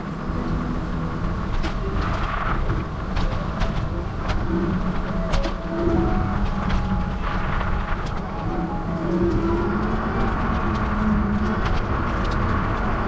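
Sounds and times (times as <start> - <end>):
bicycle road rumble: 0.0 - 13.0
wind: 0.0 - 13.0.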